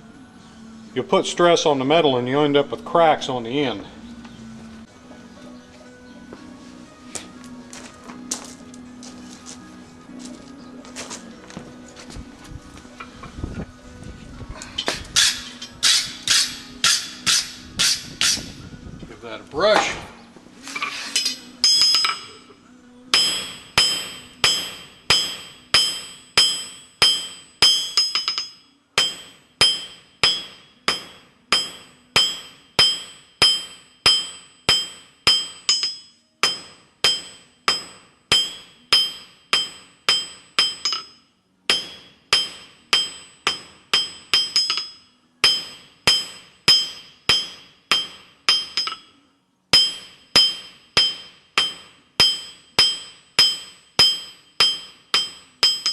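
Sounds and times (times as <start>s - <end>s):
wire brush scrubbing steel: 14.8s - 18.5s, 20.6s - 22.3s
hammer striking steel on anvil: 14.8s - 18.6s, 20.7s - 55.9s.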